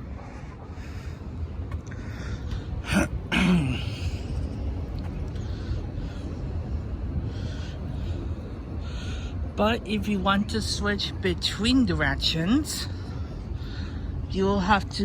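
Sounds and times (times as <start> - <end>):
low background rumble: 0.0 - 15.0
person coughing: 2.8 - 4.1.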